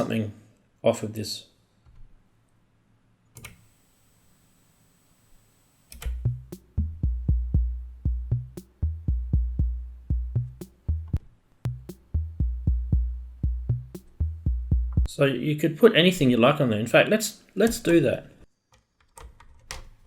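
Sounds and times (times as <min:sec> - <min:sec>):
deep kick drum hits: 0:06.2 - 0:15.1.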